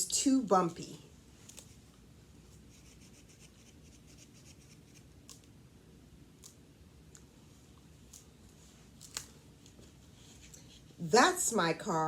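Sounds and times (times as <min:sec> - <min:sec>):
fingertips scratching textured page: 0:02.7 - 0:05.1
soft clicks handling book: 0:06.4 - 0:10.8.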